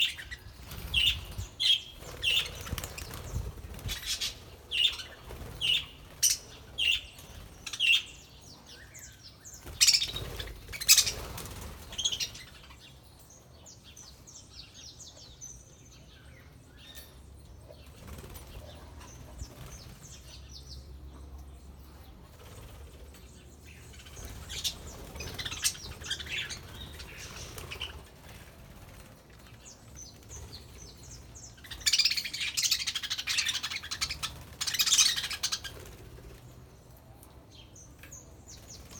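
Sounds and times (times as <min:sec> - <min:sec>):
wings flapping: 0:00.6 - 0:06.5, 0:09.6 - 0:12.1, 0:24.0 - 0:30.8, 0:33.0 - 0:36.4.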